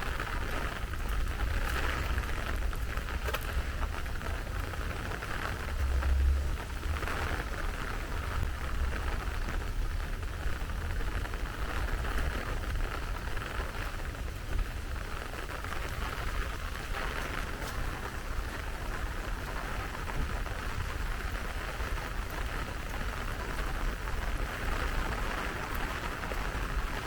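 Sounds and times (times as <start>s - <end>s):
low rumble: 0.0s - 12.3s
heavy rain: 0.0s - 27.0s.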